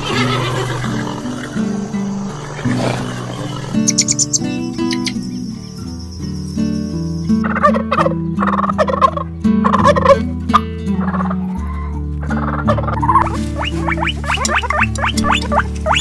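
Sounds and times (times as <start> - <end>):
fowl calling in rattling bursts: 0.0 - 5.2, 12.3 - 16.0.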